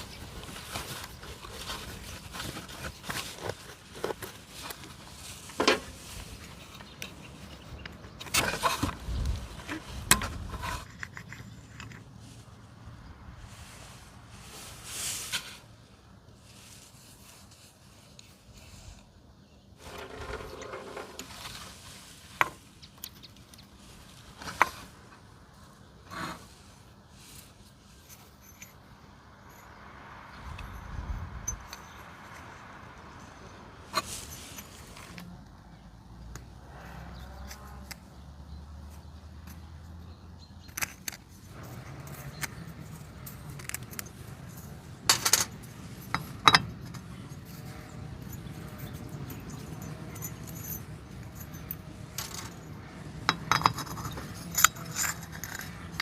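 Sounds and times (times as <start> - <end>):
small metal parts clinking: 0.0 - 12.2, 19.8 - 21.7, 28.0 - 29.8, 30.5 - 35.3, 40.6 - 56.0
rubbing scrape: 19.8 - 22.7.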